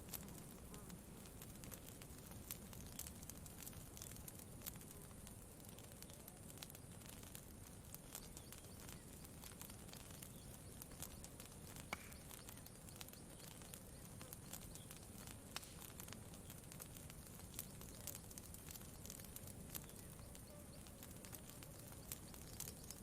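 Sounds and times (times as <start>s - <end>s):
campfire crackling: 0.0s - 23.0s.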